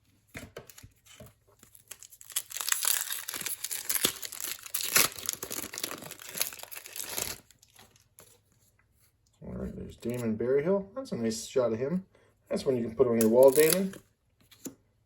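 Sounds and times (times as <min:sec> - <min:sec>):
card pack wrapper tearing and crinkling: 0:00.6 - 0:08.3, 0:13.2 - 0:14.0.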